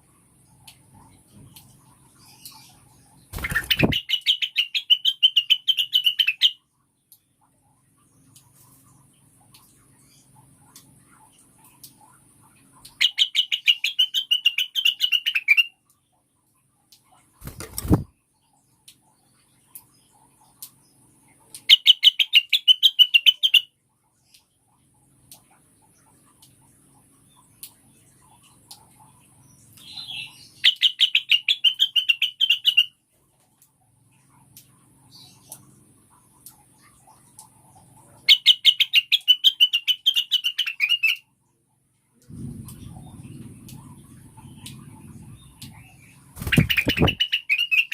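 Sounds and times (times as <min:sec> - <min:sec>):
bird calling rapid sharp notes: 0:03.3 - 0:06.6, 0:46.4 - 0:47.9
bird chirping high: 0:03.3 - 0:06.6, 0:12.9 - 0:15.8, 0:21.7 - 0:23.7, 0:29.8 - 0:32.9, 0:38.3 - 0:41.2, 0:45.2 - 0:47.9
low rumbling noise: 0:42.2 - 0:47.2.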